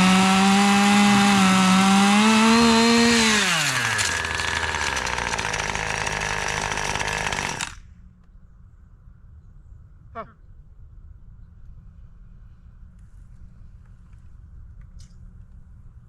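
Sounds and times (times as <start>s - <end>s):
chainsaw running: 0.0s - 7.8s.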